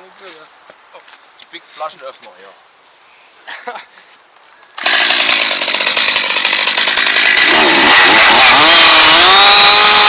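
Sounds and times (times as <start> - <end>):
chainsaw engine revving: 4.8 - 10.0.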